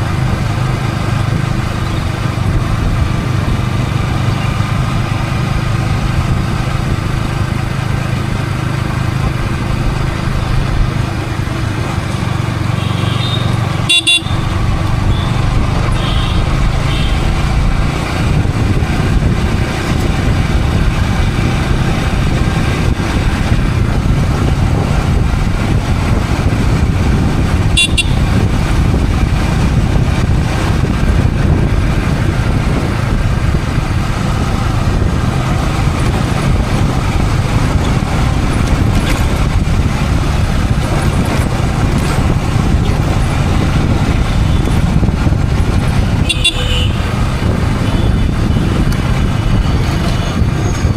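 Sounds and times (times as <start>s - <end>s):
motorcycle engine running: 0.0s - 50.9s
wind and road noise: 0.0s - 50.9s
car horns: 12.6s - 17.4s, 27.6s - 28.5s, 46.2s - 47.2s, 47.8s - 50.6s.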